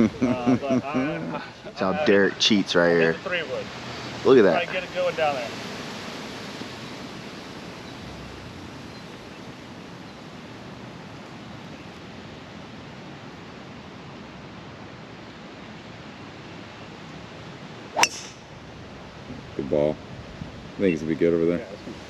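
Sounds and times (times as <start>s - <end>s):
golf club striking ball: 17.9s - 18.6s
wind buffeting microphone: 18.2s - 20.8s.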